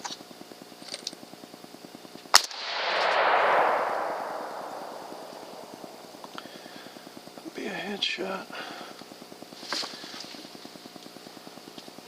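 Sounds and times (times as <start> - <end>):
gunshot with rolling echo: 2.4 - 6.6.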